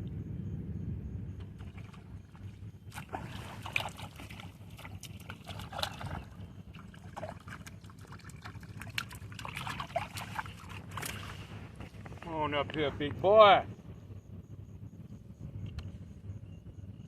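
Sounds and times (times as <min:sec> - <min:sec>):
steady low rumble: 0:00.0 - 0:17.0
fish splashing in water: 0:01.6 - 0:12.0.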